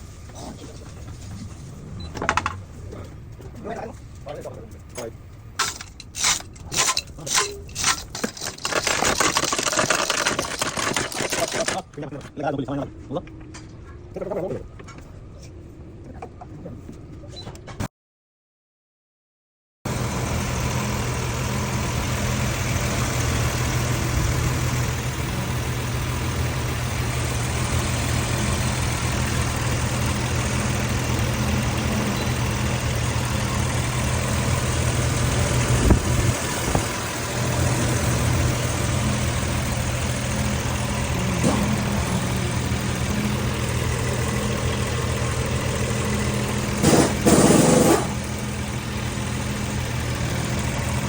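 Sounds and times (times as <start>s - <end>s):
engine knocks: 0.0s - 12.0s, 20.7s - 51.0s
engine clattering burst: 19.9s - 51.0s
engine idling: 19.9s - 51.0s.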